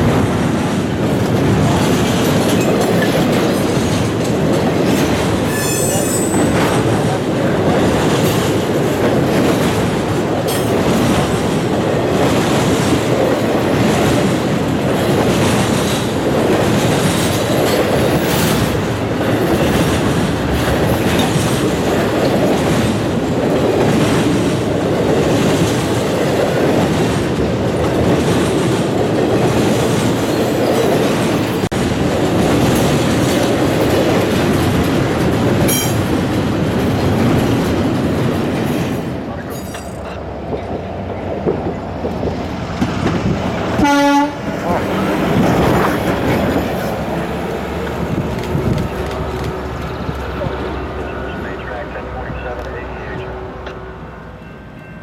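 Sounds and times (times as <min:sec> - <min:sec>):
train wheels clicking over rail joints: 0:00.0 - 0:43.8, 0:44.4 - 0:50.8
high wheel squeal: 0:05.5 - 0:06.5.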